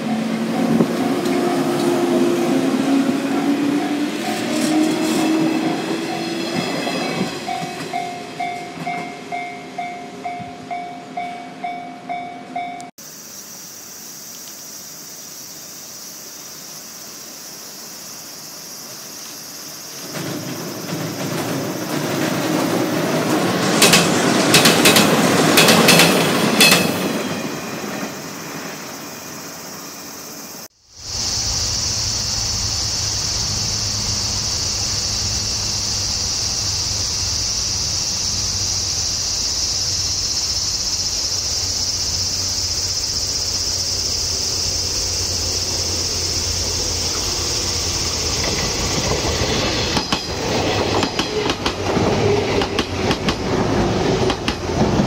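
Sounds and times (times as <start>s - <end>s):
insect drone: 0.0s - 11.2s, 13.0s - 55.0s
train wheels clicking over rail joints: 20.0s - 28.9s, 38.9s - 55.0s.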